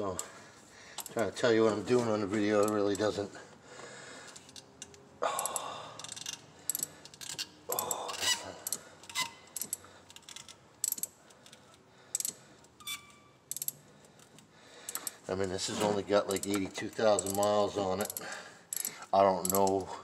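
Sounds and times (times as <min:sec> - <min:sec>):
socket ratchet clicking: 0:04.4 - 0:15.2, 0:16.3 - 0:19.9
metal sockets clinking: 0:16.3 - 0:19.9.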